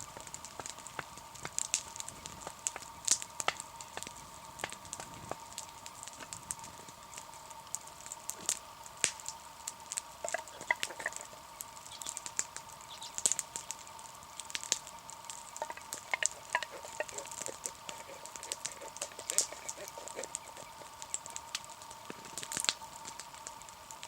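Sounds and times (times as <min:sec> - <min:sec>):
campfire crackling and popping: 0:00.0 - 0:24.0
faint high hum: 0:00.0 - 0:24.0.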